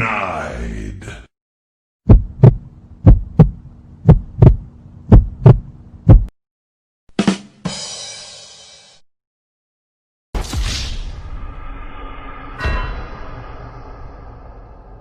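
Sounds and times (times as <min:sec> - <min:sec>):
heartbeat double thumps: 0:02.0 - 0:06.3
low steady hum: 0:02.1 - 0:06.3.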